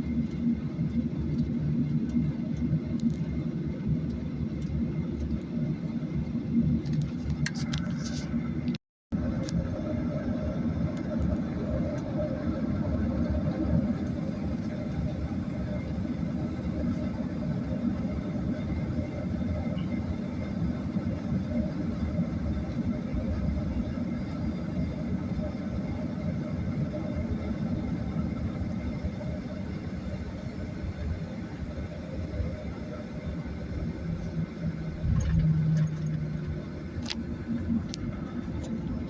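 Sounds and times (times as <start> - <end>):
airliner cabin engine rumble: 0.0 - 39.0
low steady hum: 0.0 - 39.0.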